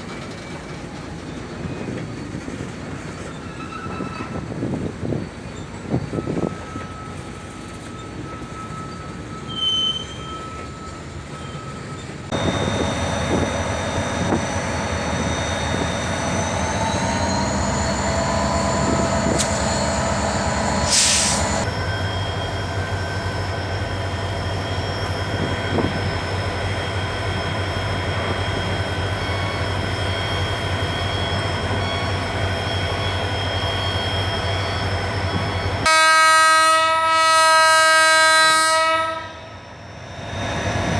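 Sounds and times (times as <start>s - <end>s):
freight train running: 0.0s - 40.9s
high-pitched wheel squeal: 3.2s - 35.8s
loud hiss or clank: 19.4s - 19.9s, 20.8s - 21.6s.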